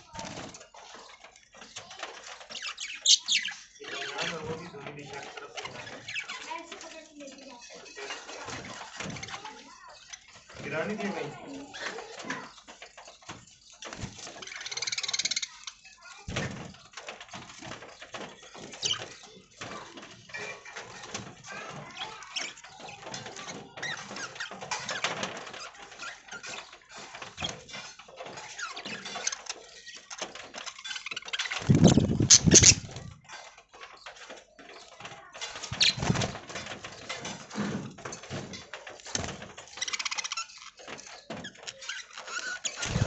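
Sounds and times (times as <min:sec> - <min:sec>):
birds scratching and rustling: 0:00.0 - 0:43.0
budgerigars chattering: 0:02.6 - 0:04.4, 0:31.6 - 0:32.9.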